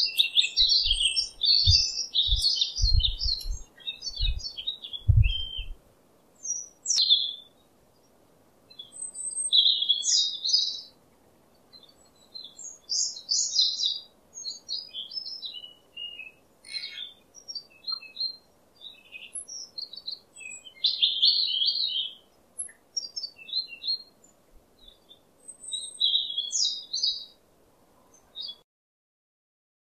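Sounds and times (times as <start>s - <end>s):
faint steady hiss: 0.0s - 28.6s
small birds chirping and trilling: 0.0s - 28.6s
low thumps: 1.6s - 3.6s, 5.1s - 5.7s.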